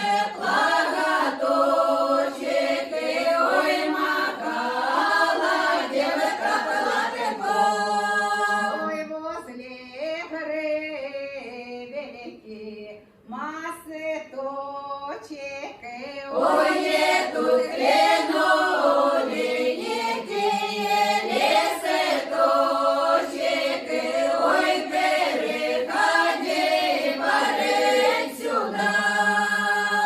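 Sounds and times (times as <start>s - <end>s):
folk choir singing: 0.0s - 9.1s, 16.3s - 30.0s.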